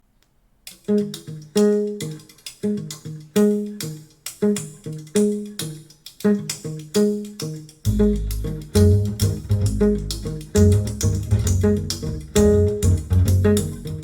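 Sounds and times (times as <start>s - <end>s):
plucked string music over speakers: 2.9s - 14.0s.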